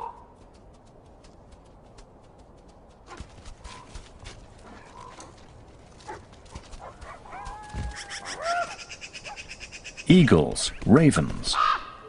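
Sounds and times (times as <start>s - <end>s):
birds calling: 3.0s - 12.0s.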